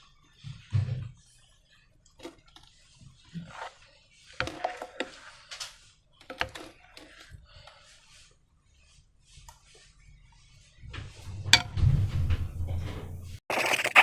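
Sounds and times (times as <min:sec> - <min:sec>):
slime squelching: 0:13.5 - 0:14.0.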